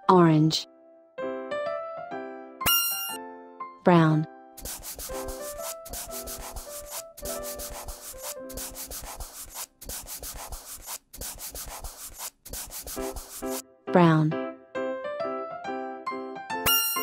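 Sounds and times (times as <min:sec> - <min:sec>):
soft melody: 0:00.7 - 0:09.2, 0:13.6 - 0:17.0
marker scribbling on paper: 0:04.6 - 0:13.6.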